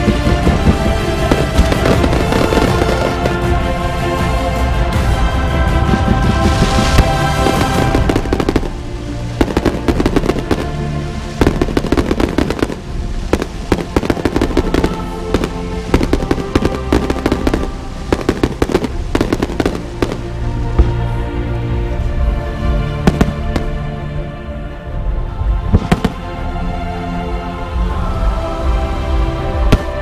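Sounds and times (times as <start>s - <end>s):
fireworks bursting and crackling: 0.0s - 4.4s, 5.0s - 21.1s, 23.0s - 23.8s, 25.7s - 26.3s, 29.6s - 30.0s
music playing: 0.0s - 30.0s.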